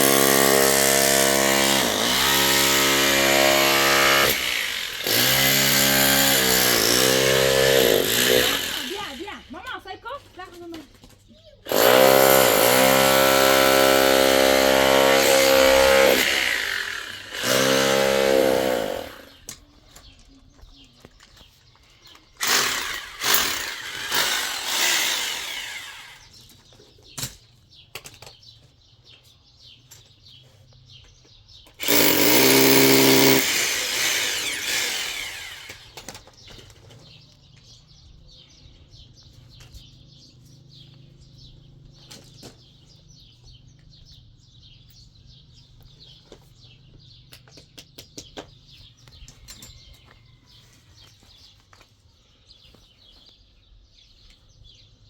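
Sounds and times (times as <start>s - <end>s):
power tool motor: 0.0s - 9.4s, 11.7s - 19.5s, 22.4s - 26.4s, 31.8s - 36.4s
rough noisy bursts: 0.0s - 9.4s, 11.7s - 19.4s, 22.4s - 26.3s, 31.8s - 36.2s
birds chirping faintly: 18.7s - 33.4s, 34.4s - 55.0s.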